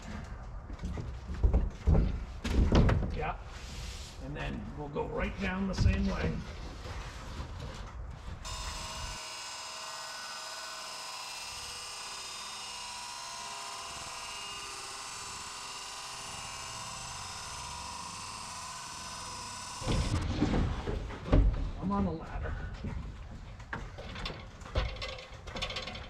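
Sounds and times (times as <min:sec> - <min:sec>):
high-pitched electric buzz: 0:08.4 - 0:20.2.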